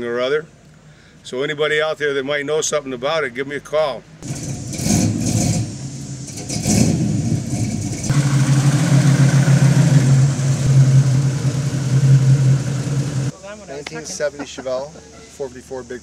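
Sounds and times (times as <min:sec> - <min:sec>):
car engine running: 0:04.2 - 0:13.3
low engine note: 0:04.2 - 0:13.4.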